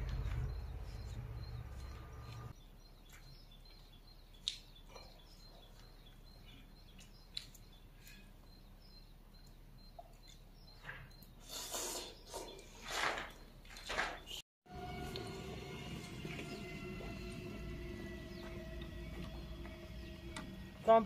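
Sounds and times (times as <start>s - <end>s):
low hum: 0.0s - 2.6s, 14.7s - 21.0s
small birds chirping: 0.0s - 14.4s, 16.2s - 21.0s.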